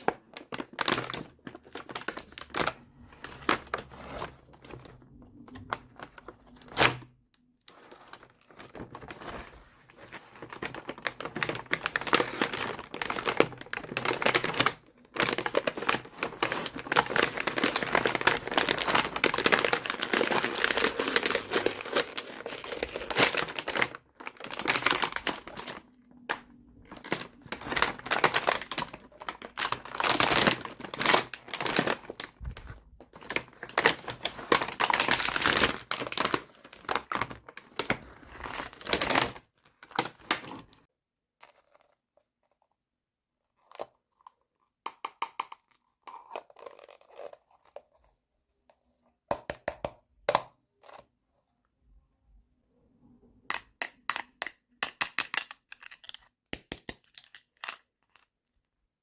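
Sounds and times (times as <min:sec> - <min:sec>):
plastic packaging crinkling: 0:00.0 - 0:40.9, 0:46.1 - 0:47.8
small plastic pieces clicking: 0:53.5 - 0:58.3.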